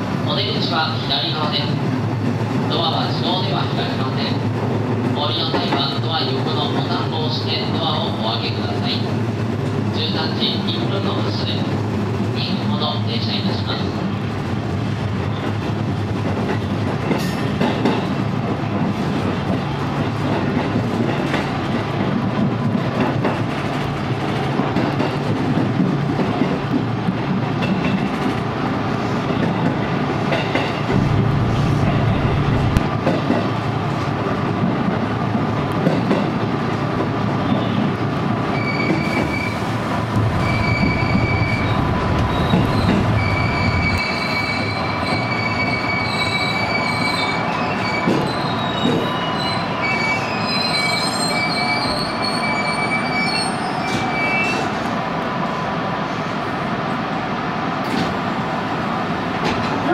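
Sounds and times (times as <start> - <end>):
train rumble: 0.0 - 59.9
train wheel clatter: 15.3 - 28.5, 29.3 - 38.0, 38.6 - 54.9
train wheel squeal: 38.5 - 39.7, 40.3 - 54.8
high squealing tones: 40.2 - 48.5.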